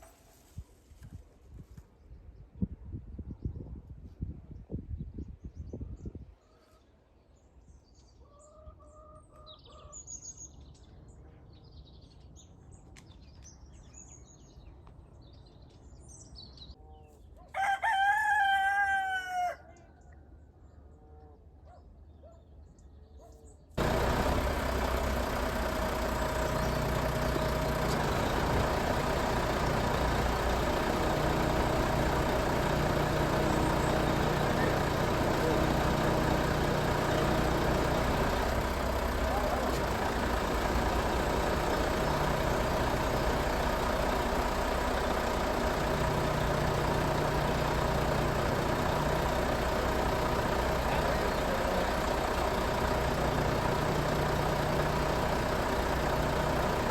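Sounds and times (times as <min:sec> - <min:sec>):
rooster crowing: 0:17.6 - 0:19.7
small birds chirping: 0:23.3 - 0:56.9
loud mechanical engine noise: 0:23.8 - 0:56.9.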